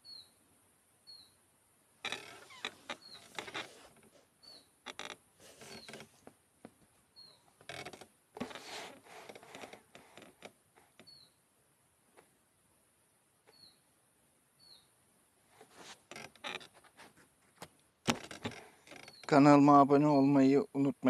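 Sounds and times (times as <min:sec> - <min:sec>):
bird chirping: 0:00.0 - 0:00.4, 0:01.0 - 0:01.4, 0:02.1 - 0:03.8, 0:04.4 - 0:04.8, 0:07.1 - 0:07.6, 0:11.0 - 0:11.4, 0:13.5 - 0:13.9, 0:14.6 - 0:15.0, 0:18.9 - 0:19.7
rustling and crackling leaves: 0:02.0 - 0:11.0.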